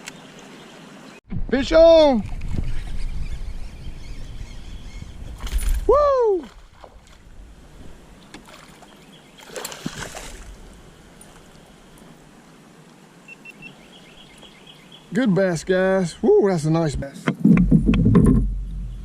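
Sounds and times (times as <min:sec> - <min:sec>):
water noise: 0:00.0 - 0:19.0
wind on microphone: 0:01.3 - 0:08.0
person shouting: 0:05.9 - 0:06.5
short splash: 0:09.4 - 0:10.6.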